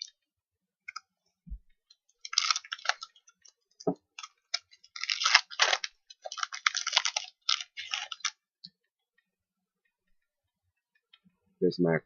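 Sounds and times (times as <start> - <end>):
foil wrapper tearing: 2.2 - 3.5, 4.1 - 8.4.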